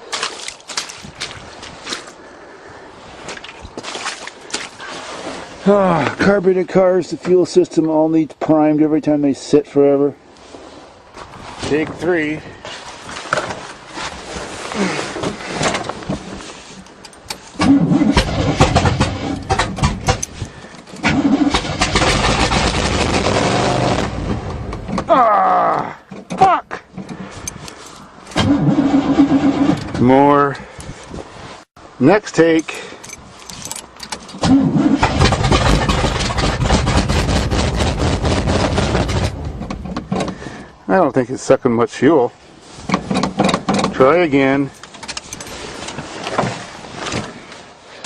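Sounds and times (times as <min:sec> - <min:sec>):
starter motor cranking: 0:17.6 - 0:24.5, 0:28.3 - 0:30.1, 0:33.1 - 0:39.4.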